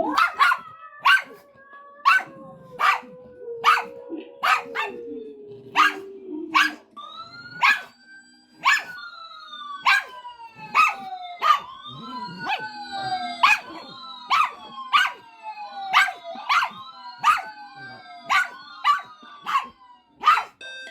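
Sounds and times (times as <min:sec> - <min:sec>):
dog barking sharply: 0:00.1 - 0:01.4, 0:03.6 - 0:04.9, 0:18.3 - 0:20.5
long wailing tones sliding down: 0:00.7 - 0:20.1.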